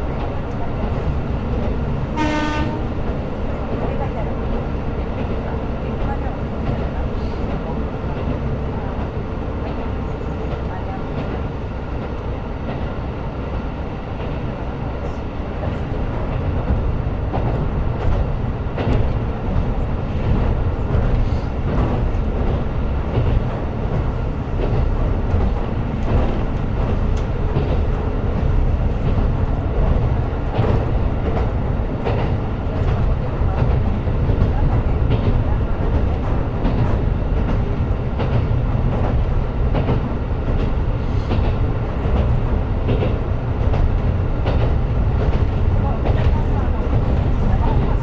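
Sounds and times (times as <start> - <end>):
train engine and wheels rumbling: 0.0 - 48.0
wheels clacking over rail joints: 16.2 - 48.0.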